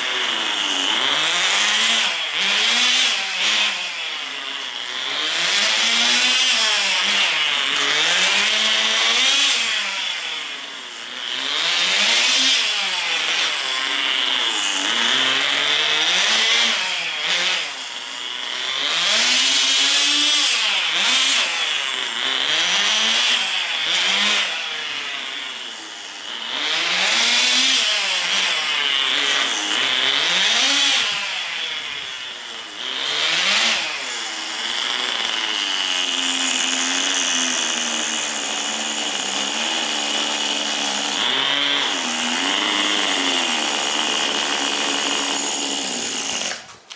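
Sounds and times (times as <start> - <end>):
small engine buzzing and revving: 0.0 - 46.9.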